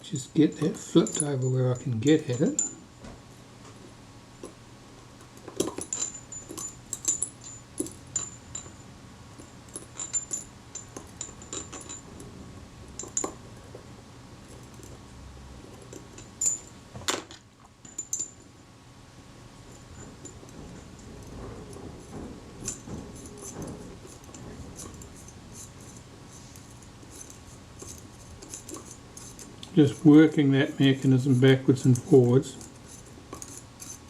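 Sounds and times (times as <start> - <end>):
small metallic clicks and tinkles: 0.1 - 2.8, 5.2 - 12.3, 15.7 - 18.5.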